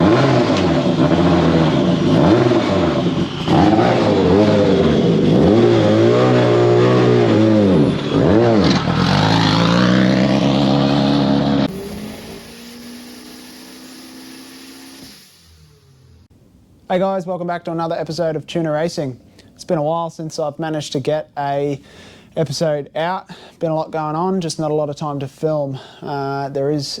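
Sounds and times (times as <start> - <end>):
race car engine revving: 0.0 - 16.3.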